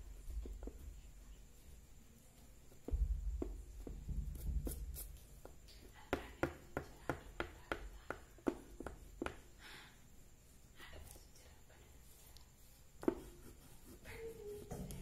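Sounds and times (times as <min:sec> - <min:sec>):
oil pastel tapping on paper: 0:05.4 - 0:09.5.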